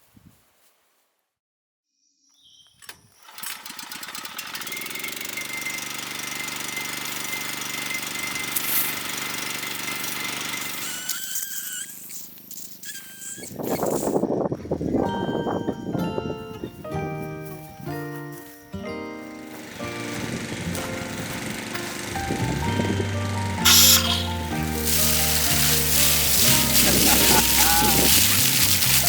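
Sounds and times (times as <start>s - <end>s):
small engine running: 3.2s - 14.0s, 19.5s - 29.0s
high squeals: 10.7s - 14.2s, 23.6s - 29.0s.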